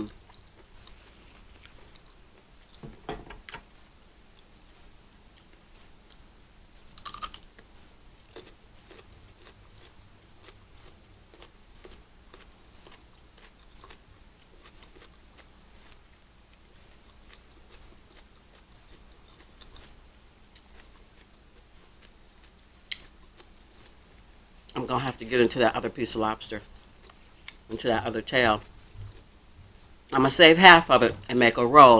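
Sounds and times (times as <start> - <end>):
person chewing food: 0.0 - 2.8, 6.9 - 24.8, 26.7 - 27.9, 28.5 - 30.0.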